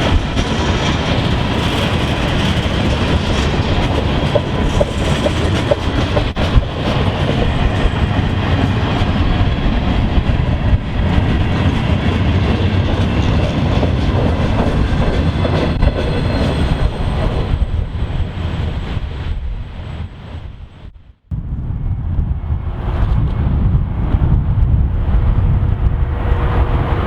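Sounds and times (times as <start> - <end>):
train wheels rumbling and clicking: 0.0 - 20.9.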